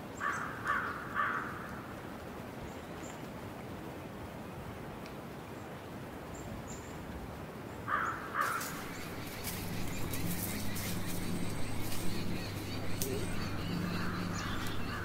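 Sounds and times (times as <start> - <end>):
loud bird calls: 0.2 - 1.7, 7.9 - 15.0
low steady hum: 8.6 - 15.0.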